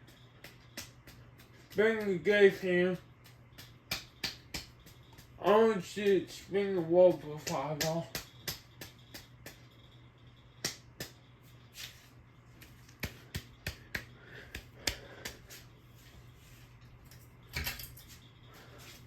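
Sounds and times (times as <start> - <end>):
steady low hum: 0.0 - 19.0
sharp clicks and taps: 7.1 - 9.6.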